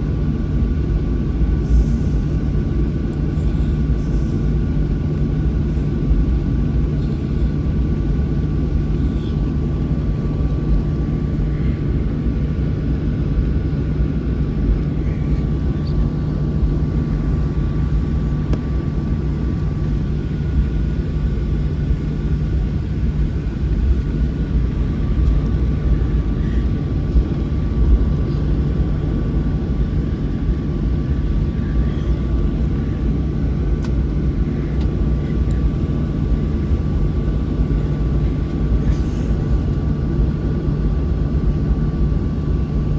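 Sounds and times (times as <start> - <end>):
jet engines idling in cabin: 0.0 - 42.9.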